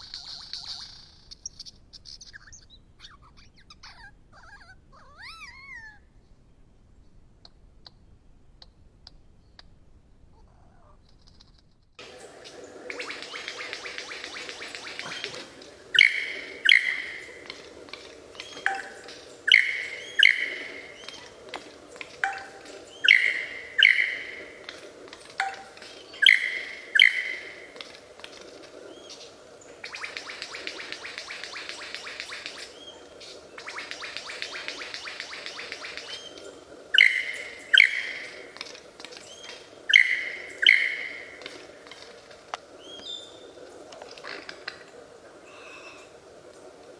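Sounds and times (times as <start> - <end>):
bird calling: 12.0 - 46.2
loud harsh bird calls: 13.0 - 17.7, 18.3 - 21.4, 22.2 - 24.7.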